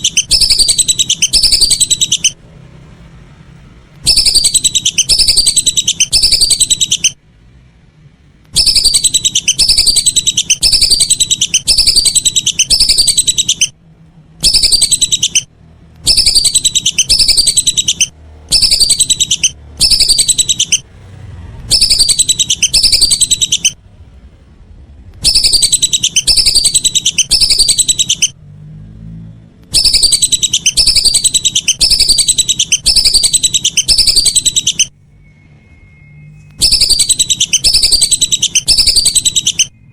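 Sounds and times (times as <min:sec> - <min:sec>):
whistling ducks calling: 0:00.0 - 0:02.4, 0:04.0 - 0:07.2, 0:08.6 - 0:13.8, 0:14.4 - 0:15.5, 0:16.1 - 0:20.8, 0:21.7 - 0:23.8, 0:25.2 - 0:28.4, 0:29.7 - 0:34.9, 0:36.5 - 0:39.9.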